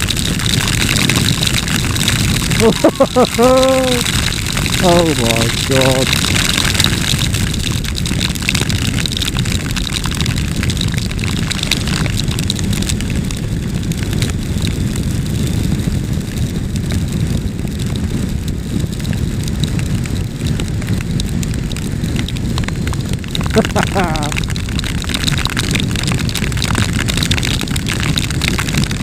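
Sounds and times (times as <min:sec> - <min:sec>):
rain ticking on microphone: 0:00.0 - 0:29.0
motorcycle engine and road rumble: 0:06.1 - 0:29.0.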